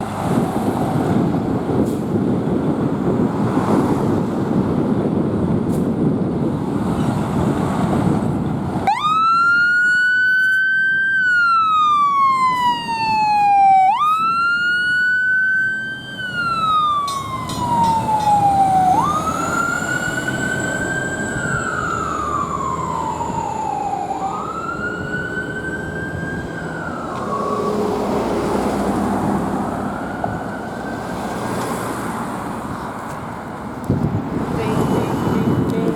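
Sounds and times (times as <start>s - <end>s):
heavy engine and road rumble: 0.0s - 35.9s
siren wailing: 8.8s - 31.4s.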